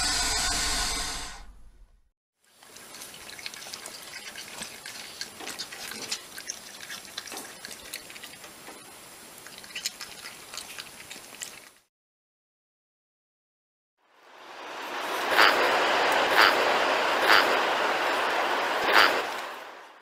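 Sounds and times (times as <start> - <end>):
steady hiss: 0.0 - 1.6, 14.1 - 20.0
small irregular clicks and crackles: 2.5 - 11.9.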